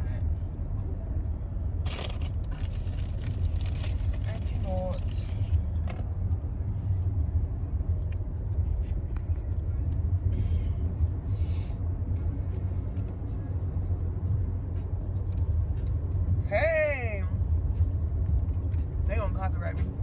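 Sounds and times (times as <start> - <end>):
car cabin rumble: 0.0 - 11.3.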